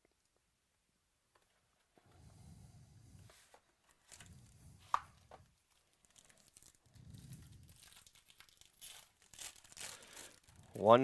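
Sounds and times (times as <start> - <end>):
packaging rustling and tearing: 3.8 - 11.0.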